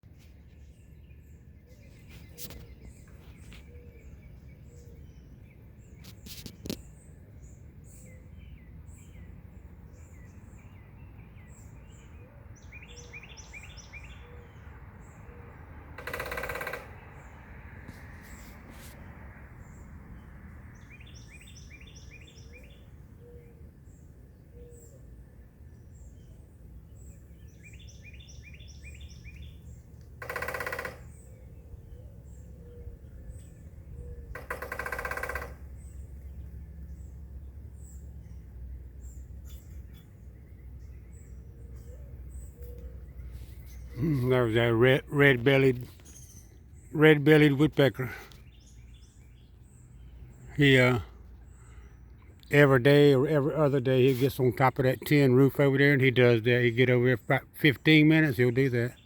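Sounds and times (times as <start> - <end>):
birds chirping: 0.0 - 59.0
outdoor background noise: 0.0 - 59.0
woodpecker drumming on tin roof: 15.9 - 17.3, 29.5 - 31.5, 34.3 - 36.5.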